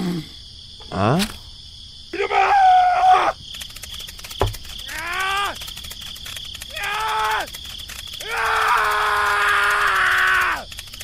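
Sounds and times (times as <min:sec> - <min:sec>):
crickets chirping: 0:00.0 - 0:11.0
drawn-out animal-like calls: 0:02.9 - 0:11.0
sharp click: 0:03.5 - 0:08.9.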